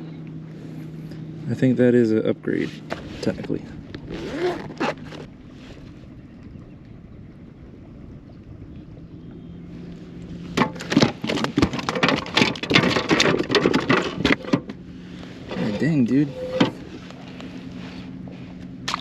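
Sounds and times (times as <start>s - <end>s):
faint steady hum: 4.8s - 19.0s
gear clattering and knocking: 10.5s - 14.8s.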